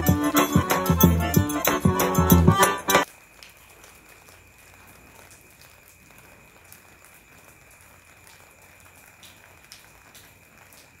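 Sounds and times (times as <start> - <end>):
light rain pattering: 3.0 - 11.0
single raindrops ticking: 3.0 - 11.0.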